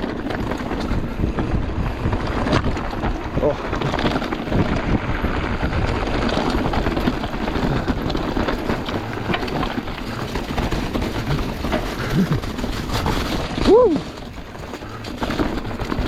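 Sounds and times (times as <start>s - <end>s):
bike rattling: 0.0s - 16.0s
bike tyres rumbling on dirt: 0.0s - 16.0s
steady rush of noise: 0.0s - 16.0s.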